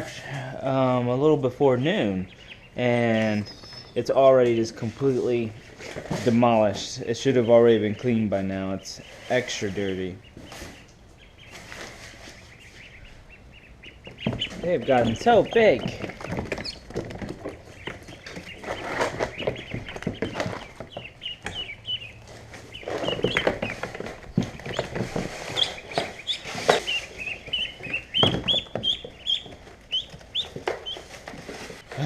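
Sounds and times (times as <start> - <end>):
ducklings peeping: 0.0 - 32.0
scratchy rustles and knocks: 3.6 - 8.1, 14.0 - 32.0.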